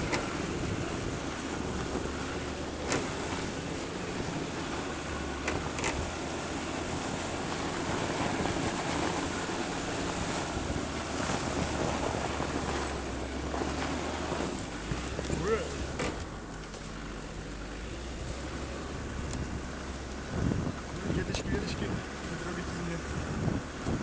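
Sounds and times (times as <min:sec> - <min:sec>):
diesel engine droning: 0:00.0 - 0:24.0
tyres churning through wet snow: 0:00.0 - 0:24.0.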